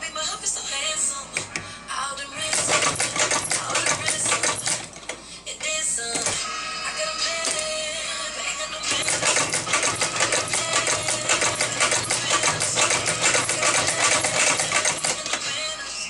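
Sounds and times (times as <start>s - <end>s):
sewing machine needle clicks: 2.5s - 4.9s, 9.0s - 15.4s
motor hum: 8.9s - 15.8s.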